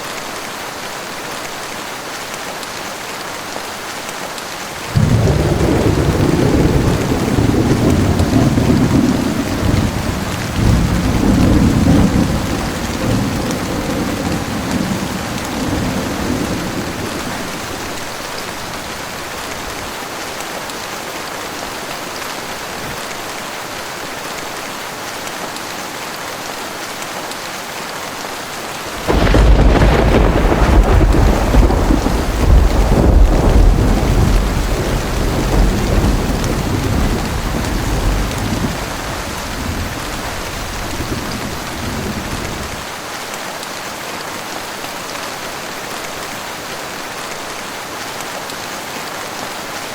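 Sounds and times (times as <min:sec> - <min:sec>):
heavy rain falling: 0:00.0 - 0:49.9
loud thunderclap: 0:04.9 - 0:17.6, 0:28.9 - 0:42.8
low thunder rumble: 0:05.0 - 0:18.0, 0:28.9 - 0:42.8.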